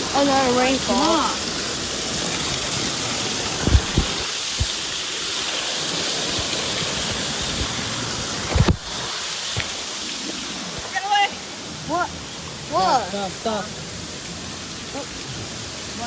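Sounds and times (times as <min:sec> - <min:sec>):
rain falling: 0:00.0 - 0:16.0
low thumps: 0:03.5 - 0:04.9.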